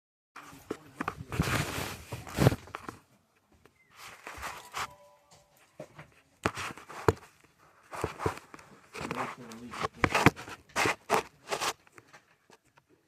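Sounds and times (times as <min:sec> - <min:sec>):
scuffling handling noise: 0:00.4 - 0:03.1, 0:03.9 - 0:12.9
footsteps: 0:03.9 - 0:11.8.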